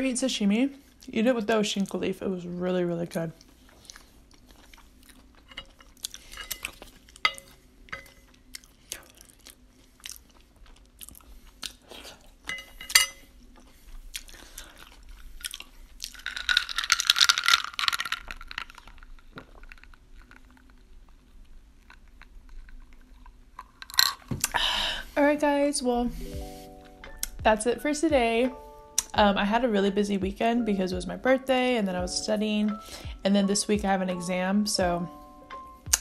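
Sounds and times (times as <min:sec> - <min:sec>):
chewing food: 0:03.3 - 0:24.6.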